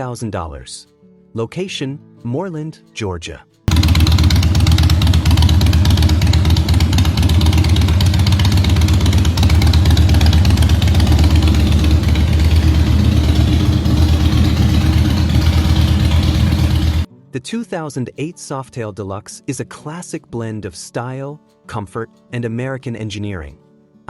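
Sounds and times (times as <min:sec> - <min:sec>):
motorcycle engine idling: 0:03.7 - 0:17.1.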